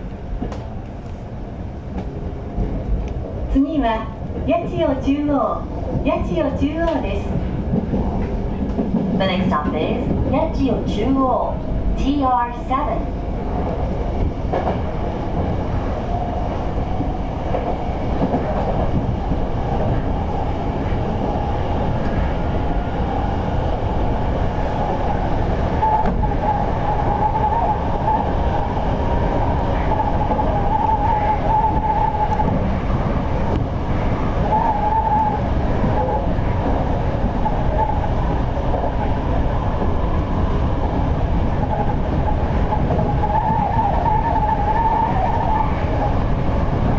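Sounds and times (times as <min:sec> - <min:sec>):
train wheels rumbling on rail: 0:00.0 - 0:46.9
wavering high wheel squeal: 0:29.8 - 0:32.5, 0:34.4 - 0:35.4, 0:42.7 - 0:46.1.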